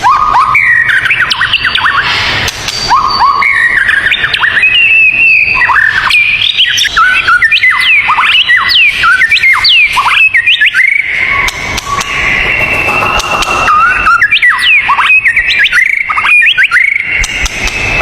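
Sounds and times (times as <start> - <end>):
songbird singing: 0.1 - 18.0
steady high tone: 9.8 - 16.5.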